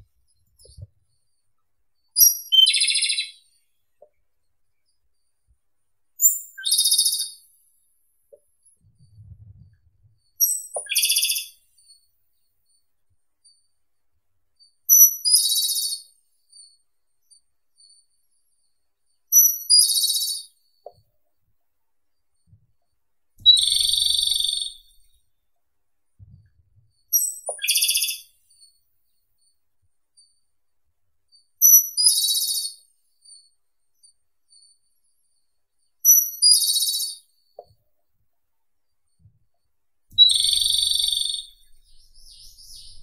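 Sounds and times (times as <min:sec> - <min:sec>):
bird singing with rattling trill: 0:02.2 - 0:03.8, 0:06.2 - 0:07.5, 0:10.4 - 0:12.0, 0:14.9 - 0:16.7, 0:19.3 - 0:20.6, 0:23.4 - 0:25.2, 0:27.1 - 0:28.7, 0:31.6 - 0:33.4, 0:36.0 - 0:37.7, 0:40.2 - 0:43.0.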